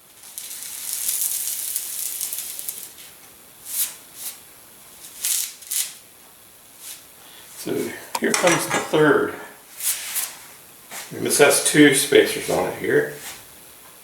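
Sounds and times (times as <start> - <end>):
pepper grains rattling on paper: 0.2 - 3.0.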